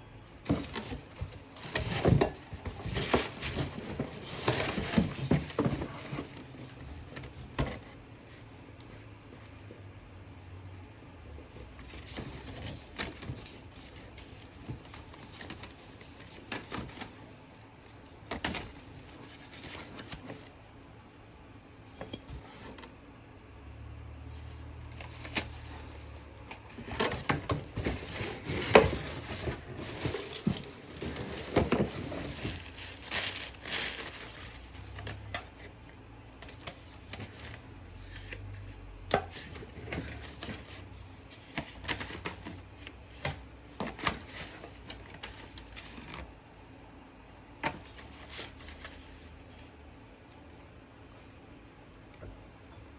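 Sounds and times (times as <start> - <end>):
packing material crinkling and tearing: 26.6 - 35.8.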